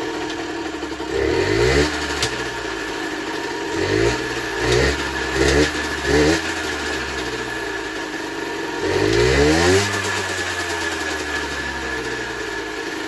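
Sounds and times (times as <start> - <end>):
two-stroke engine idling and revving: 0.0 - 13.0.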